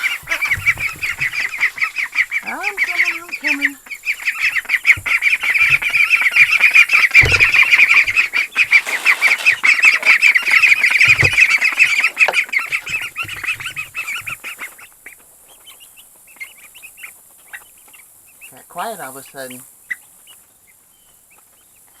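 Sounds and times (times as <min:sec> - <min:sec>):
dull thumps: 0:00.0 - 0:14.4
poultry flock calling: 0:00.0 - 0:21.6.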